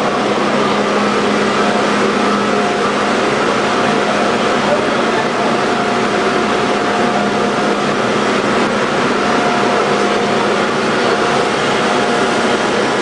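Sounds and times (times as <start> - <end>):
machinery hum: 0.0 - 13.0
machinery rushing: 0.0 - 13.0
steady high machine tones: 0.0 - 13.0.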